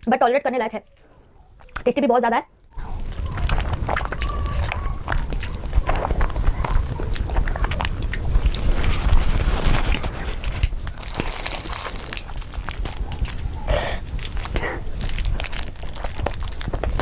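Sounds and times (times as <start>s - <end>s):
wet mouth clicks: 2.8s - 8.9s
person chewing crunchy food: 2.8s - 17.0s.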